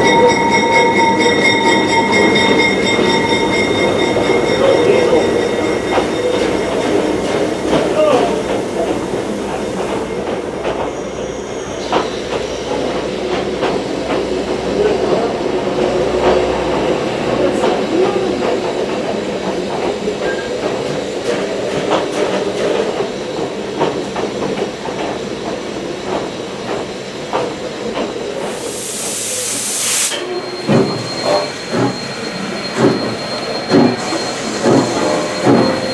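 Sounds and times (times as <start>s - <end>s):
train coach rumble and rattle: 0.0s - 35.9s
steam hiss: 28.2s - 35.9s.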